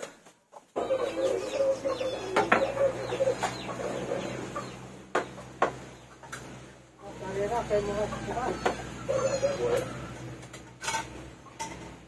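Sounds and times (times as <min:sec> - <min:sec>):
chickens clucking: 0:00.0 - 0:12.0
sharp knocks or clatters: 0:05.1 - 0:06.5.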